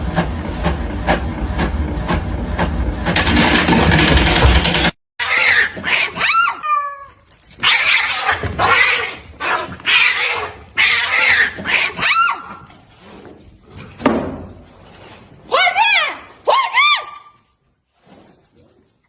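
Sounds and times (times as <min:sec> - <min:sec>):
cat yowling and hissing: 0:05.2 - 0:12.7.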